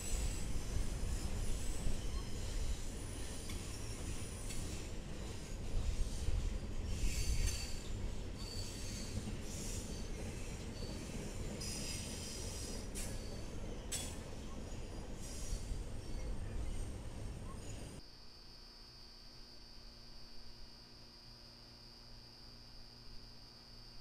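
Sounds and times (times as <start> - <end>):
high-pitched wheel squeals: 0.0 - 18.0
steel wheels rumbling on rail: 0.0 - 18.0.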